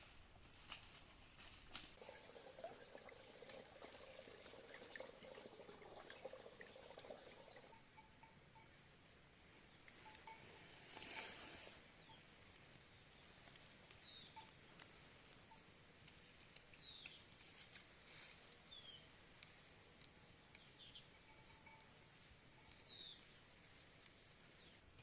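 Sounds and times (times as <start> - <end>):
bird chirps: 12.0 - 14.6, 20.6 - 24.8
light ticks: 19.3 - 24.3.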